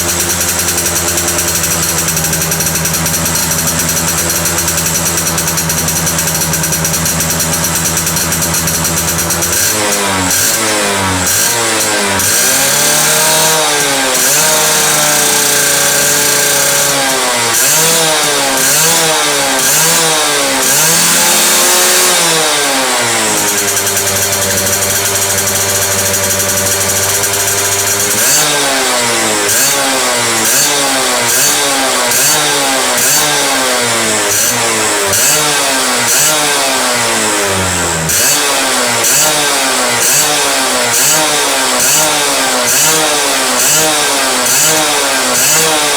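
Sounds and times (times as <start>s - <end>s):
two-stroke engine idling and revving: 0.0s - 45.9s.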